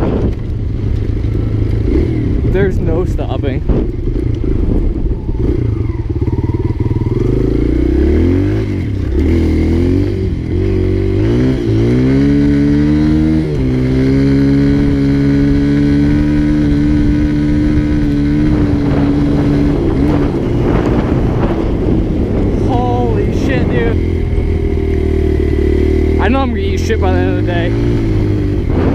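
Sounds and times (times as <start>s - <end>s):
dirt bike engine revving: 0.9s - 28.9s.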